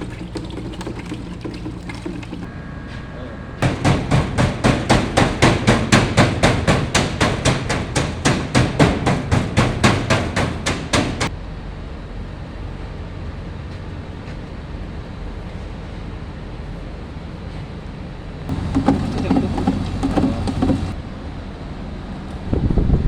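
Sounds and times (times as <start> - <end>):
rapid knocking: 3.6 - 11.3, 18.5 - 21.0.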